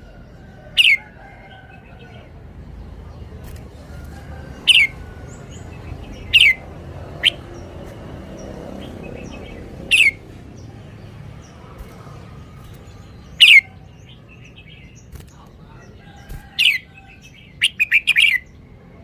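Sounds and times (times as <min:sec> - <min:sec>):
bird calling downward notes: 0:09.9 - 0:10.2.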